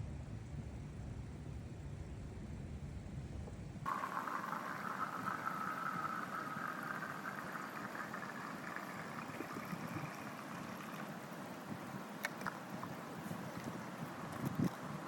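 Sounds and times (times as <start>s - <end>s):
running spring water: 3.9s - 15.0s.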